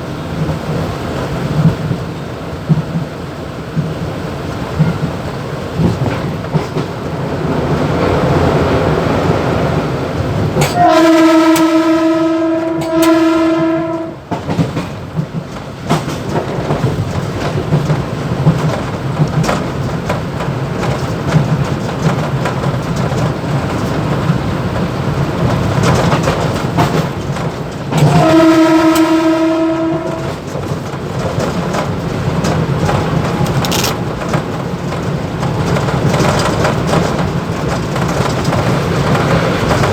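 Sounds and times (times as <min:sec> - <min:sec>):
train rumble and rattle: 0:00.0 - 0:39.9
two-tone train horn: 0:10.6 - 0:14.3, 0:28.0 - 0:30.5.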